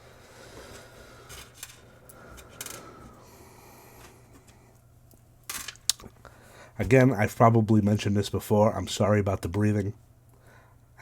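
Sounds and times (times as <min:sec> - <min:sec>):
low steady hum: 0:00.0 - 0:11.0
small parts clicking and rustling: 0:01.3 - 0:03.0, 0:04.0 - 0:06.2.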